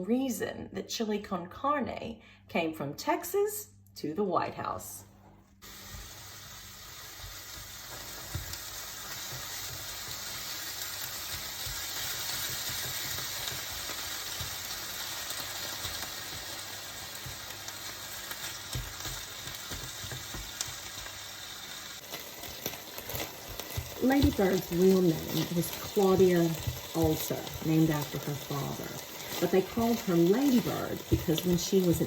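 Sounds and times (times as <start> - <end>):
food sizzling in a frying pan: 5.6 - 32.0.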